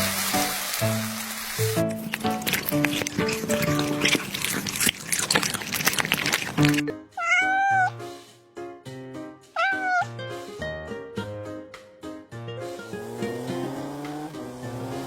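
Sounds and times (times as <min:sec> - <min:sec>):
background music: 0:00.0 - 0:15.0
cat meowing: 0:02.0 - 0:08.0, 0:09.6 - 0:10.2.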